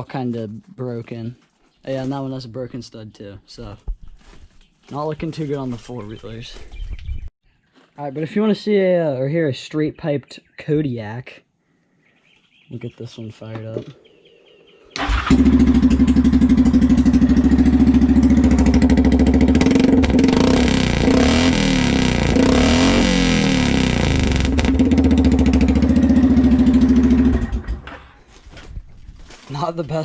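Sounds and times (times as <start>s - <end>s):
atv engine revving: 15.0s - 28.1s.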